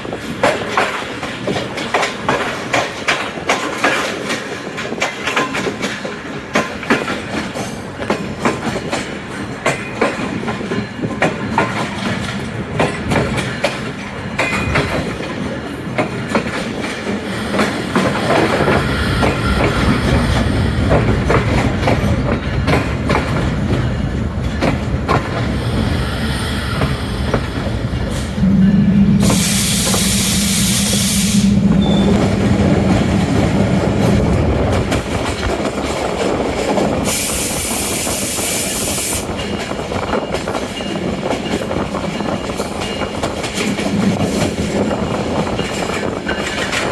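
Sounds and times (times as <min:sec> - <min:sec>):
train rumble: 0:00.0 - 0:46.9
train wheels clicking on rails: 0:00.0 - 0:46.9
steady low tone: 0:27.2 - 0:34.8
loud hiss: 0:29.2 - 0:31.7, 0:37.0 - 0:39.3.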